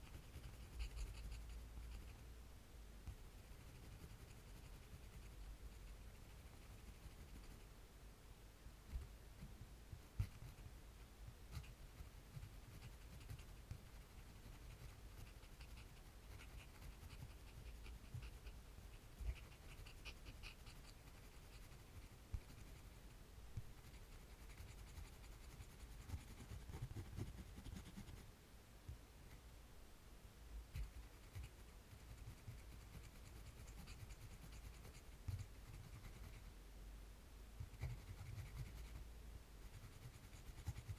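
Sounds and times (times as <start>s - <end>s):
drawing tool scratching on paper: 0.0s - 2.2s, 3.4s - 7.6s, 10.1s - 10.7s, 11.5s - 23.0s, 23.7s - 28.3s, 30.8s - 36.4s, 37.6s - 39.0s, 39.6s - 40.9s.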